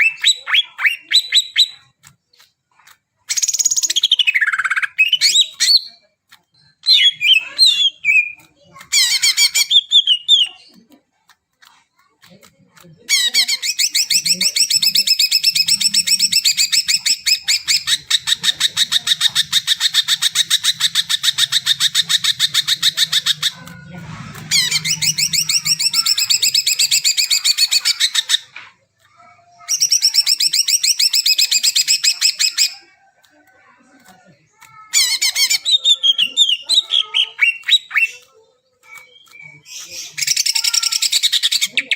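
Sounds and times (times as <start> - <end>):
bird singing rapid trills: 24.4 - 28.4.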